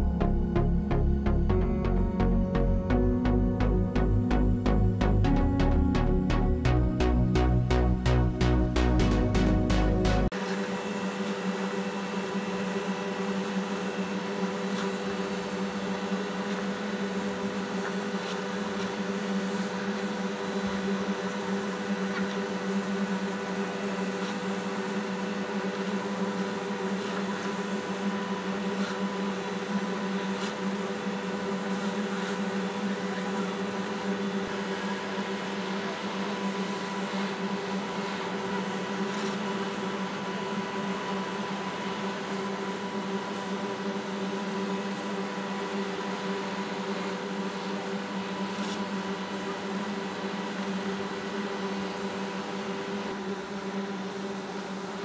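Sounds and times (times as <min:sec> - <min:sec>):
concrete paver machine drone: 0:00.0 - 0:55.0.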